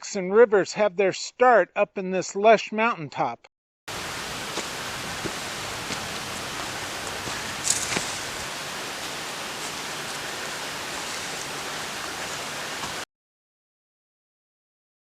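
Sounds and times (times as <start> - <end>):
running water: 3.9 - 13.0.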